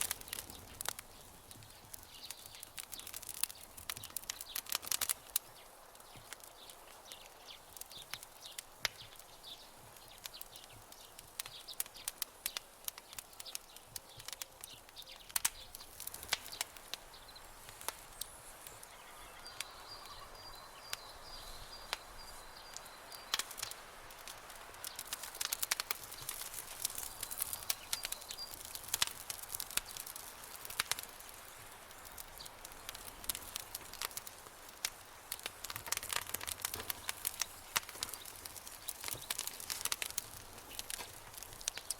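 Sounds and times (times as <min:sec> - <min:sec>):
campfire crackling and popping: 0:00.0 - 0:41.9.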